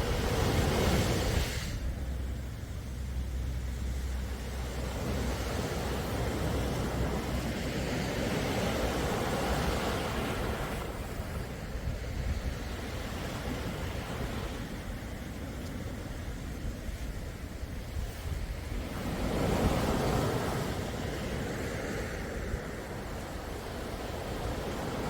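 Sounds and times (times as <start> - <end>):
steady low rumble: 0.0 - 9.0
sea waves surging: 0.0 - 25.0.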